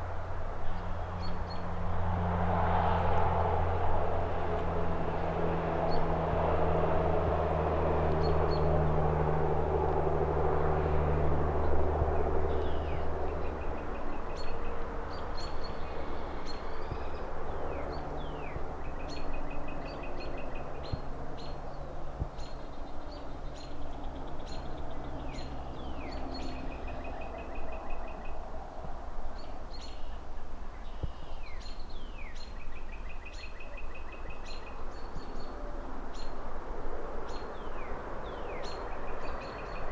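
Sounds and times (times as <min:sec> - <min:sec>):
passing engine drone: 0:00.0 - 0:30.8
faint distant traffic rumble: 0:00.0 - 0:39.9
birds chirping and trilling: 0:11.6 - 0:28.5, 0:29.3 - 0:36.4, 0:37.2 - 0:39.9.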